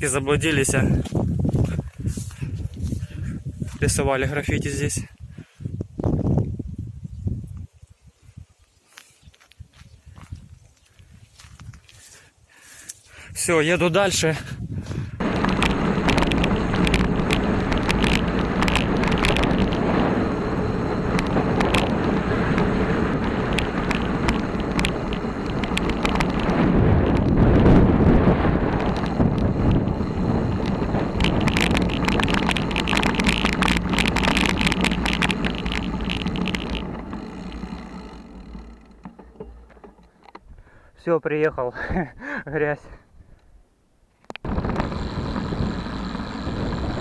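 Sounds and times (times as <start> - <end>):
wind rushing over microphone: 0.0 - 8.6, 13.2 - 39.6, 44.4 - 47.0
bicycle rattling over bumps: 14.8 - 40.5, 44.4 - 47.0.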